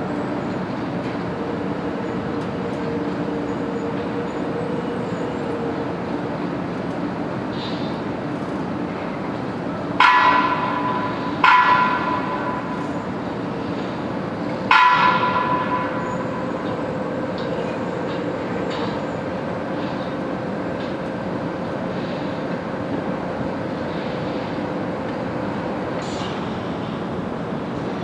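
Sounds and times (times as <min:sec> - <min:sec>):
train running noise: 0:00.0 - 0:28.0.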